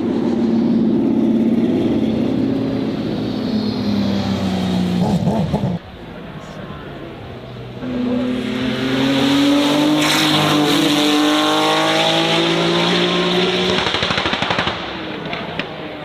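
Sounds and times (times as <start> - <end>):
car engine accelerating hard: 7.8 - 15.6.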